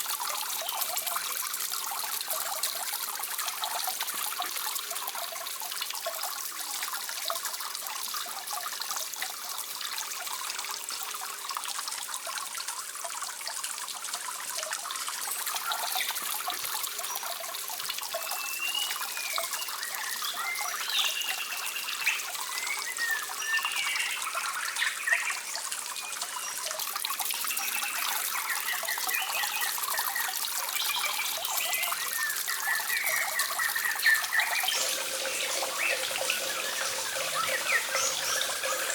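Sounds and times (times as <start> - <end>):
trickling running water: 0.0 - 38.9
wavering high-pitched calls: 32.1 - 38.9.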